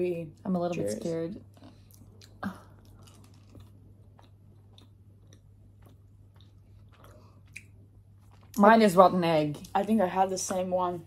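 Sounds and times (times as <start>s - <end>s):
low steady hum: 0.0s - 11.0s
person chewing: 1.5s - 8.6s.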